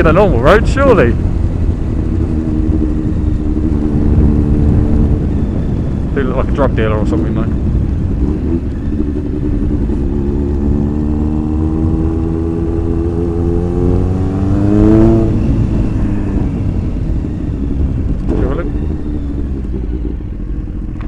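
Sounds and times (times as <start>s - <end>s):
motorcycle engine at low speed: 0.0s - 21.0s.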